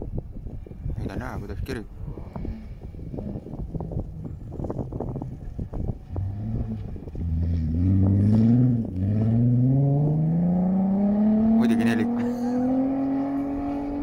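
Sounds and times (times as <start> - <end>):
rally car engine revving: 2.5 - 14.0.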